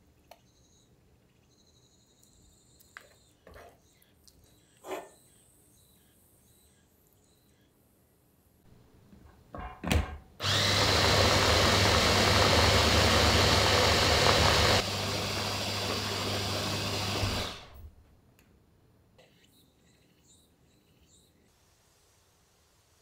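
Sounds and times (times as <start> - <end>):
electric food chopper motor: 10.4 - 17.9.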